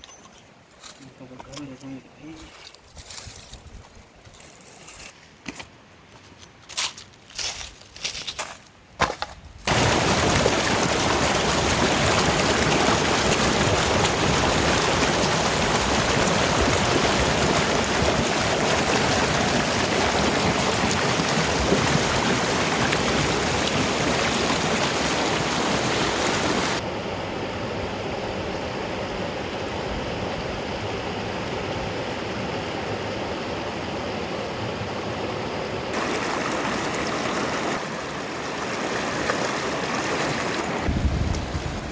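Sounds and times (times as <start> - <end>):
fast-flowing stream water: 9.7 - 26.8, 36.0 - 41.9.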